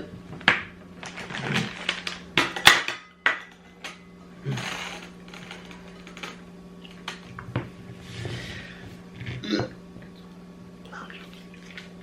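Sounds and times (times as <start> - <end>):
dishes knocking and clinking: 2.4 - 4.1.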